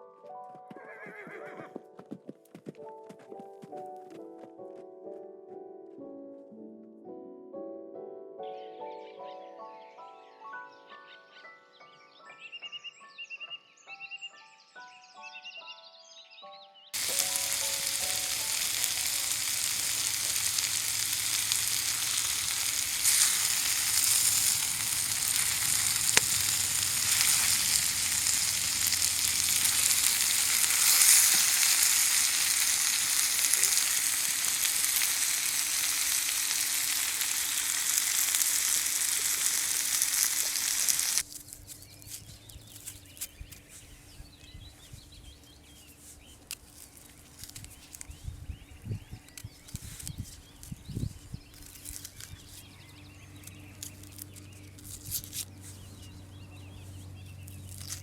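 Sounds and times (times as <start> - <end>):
food frying sizzle: 17.0 - 41.3.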